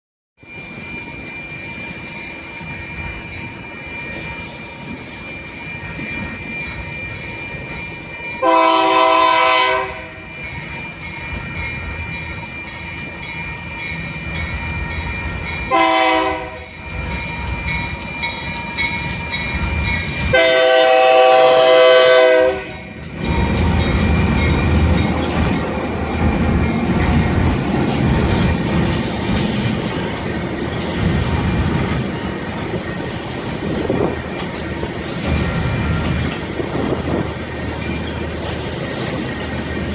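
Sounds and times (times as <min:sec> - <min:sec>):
train rumble: 0:00.4 - 0:39.9
locomotive air horn blasts: 0:08.4 - 0:10.2, 0:15.7 - 0:16.7, 0:20.1 - 0:22.8
train wheel clatter: 0:22.6 - 0:39.9.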